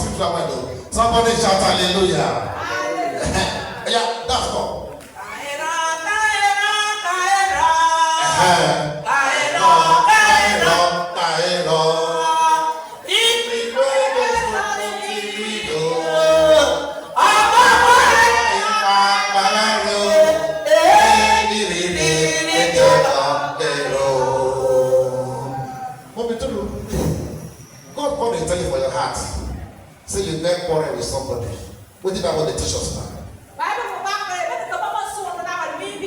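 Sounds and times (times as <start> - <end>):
choir singing: 5.2 - 26.2.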